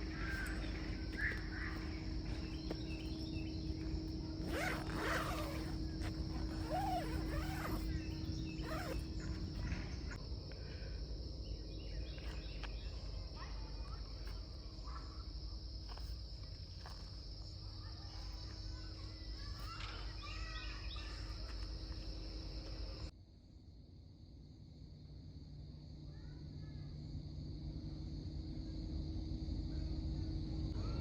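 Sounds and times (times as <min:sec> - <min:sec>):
insects trilling: 0:00.0 - 0:23.1.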